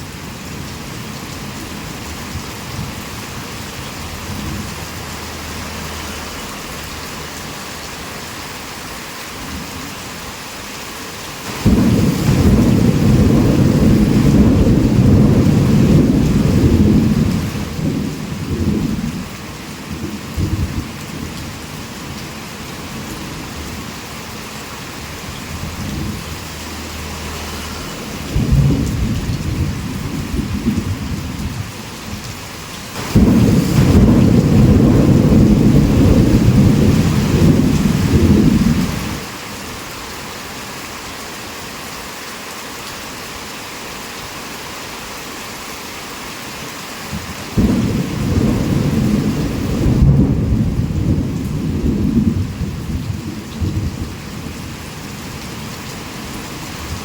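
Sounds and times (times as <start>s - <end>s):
heavy rain falling: 0.0s - 57.0s
low rumbling thunder: 11.5s - 19.3s, 19.9s - 21.4s, 28.0s - 31.7s, 33.0s - 39.2s, 47.6s - 54.9s.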